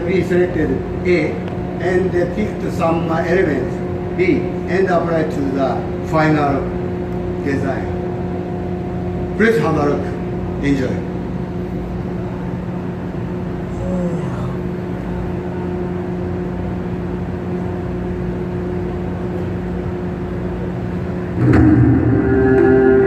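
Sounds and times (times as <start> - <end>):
sound system hum: 0.0 - 23.0
music over loudspeakers: 21.4 - 23.0.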